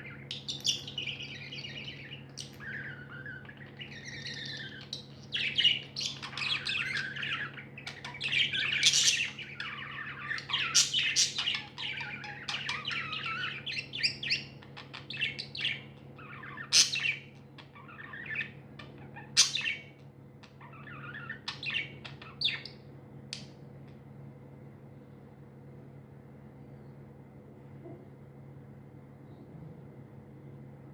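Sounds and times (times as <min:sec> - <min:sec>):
budgerigars chirping: 0:00.0 - 0:22.8
low steady hum: 0:00.0 - 0:30.9.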